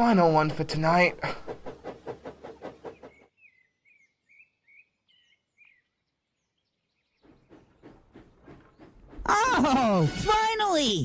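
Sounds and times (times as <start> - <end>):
faint bird chirps: 2.9 - 9.0.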